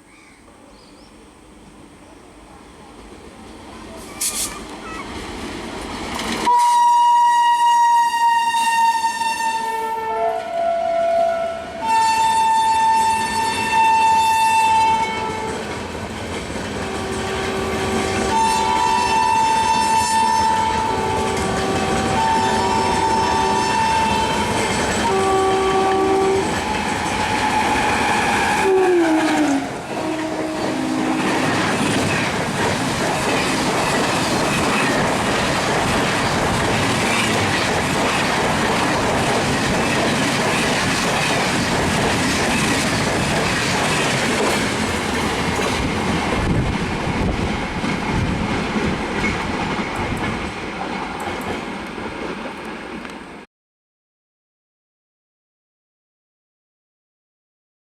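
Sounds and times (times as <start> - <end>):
train wheels clattering over rails: 4.0 - 6.5, 29.4 - 53.3
train horn blasts: 6.4 - 15.6, 16.8 - 31.6.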